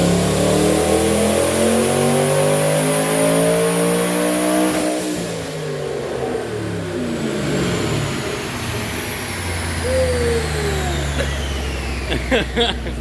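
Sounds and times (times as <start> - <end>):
engine revs falling to idle: 7.0 - 13.0.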